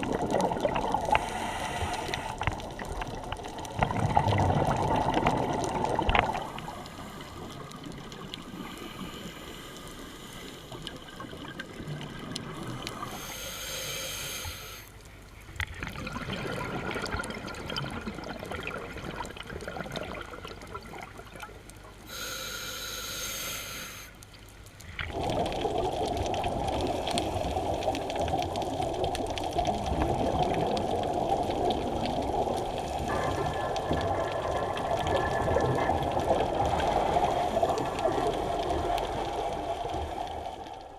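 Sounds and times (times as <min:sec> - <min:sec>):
exhaled bubbles rushing: 0:00.0 - 0:08.6, 0:15.6 - 0:21.6, 0:24.9 - 0:40.9
diver breathing through regulator: 0:01.1 - 0:02.5, 0:13.0 - 0:14.9, 0:22.1 - 0:24.2.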